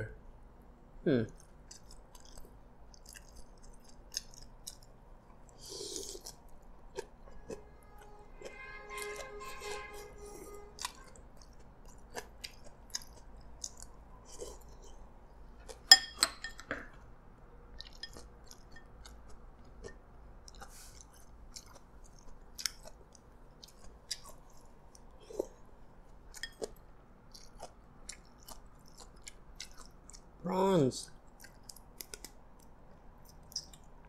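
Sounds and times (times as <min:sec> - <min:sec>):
person chewing noodles: 0:01.3 - 0:16.0, 0:17.6 - 0:30.4, 0:31.0 - 0:34.0.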